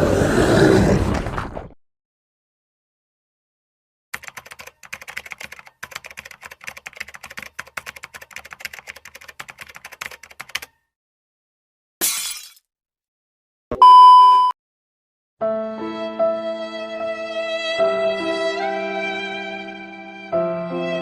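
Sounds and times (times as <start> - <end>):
typing on a computer keyboard: 4.2 - 10.8.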